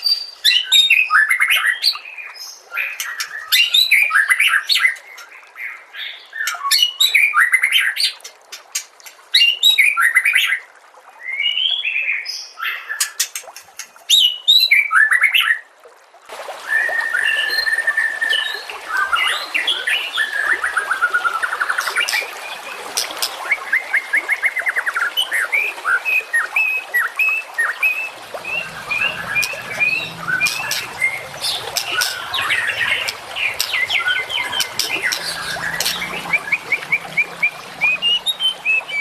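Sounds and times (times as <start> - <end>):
songbird chirps and trills: 16.8 - 39.0.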